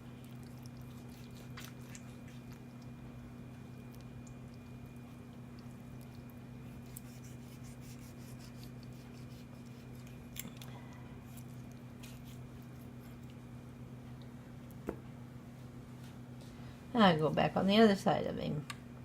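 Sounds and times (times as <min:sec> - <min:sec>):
low electrical hum: 0:00.0 - 0:19.0
knife cutting chicken wing: 0:06.7 - 0:10.5.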